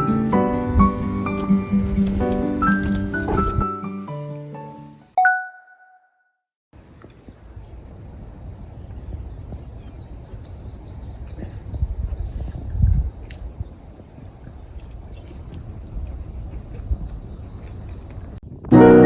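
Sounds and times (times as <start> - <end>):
background music: 0.0 - 5.7, 18.7 - 19.0
bell-like ding: 5.2 - 6.1
bird chirping: 8.2 - 18.4.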